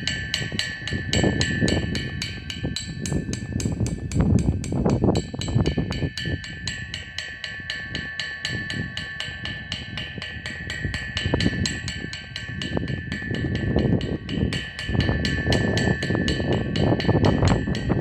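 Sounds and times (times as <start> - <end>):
heavier low thuds: 0.0 - 7.1
steady ringing tone: 0.0 - 18.0.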